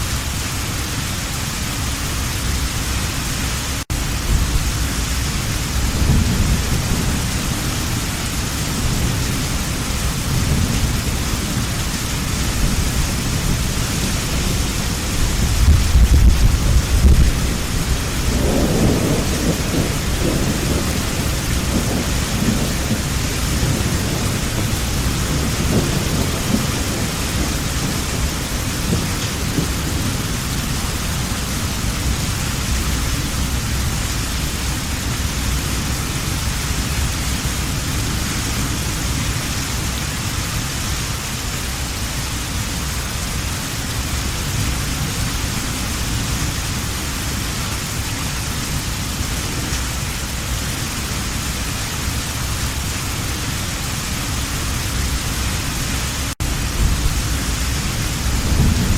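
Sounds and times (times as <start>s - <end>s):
heavy rain: 0.0s - 58.9s
rolling thunder: 3.9s - 40.0s, 53.9s - 58.9s.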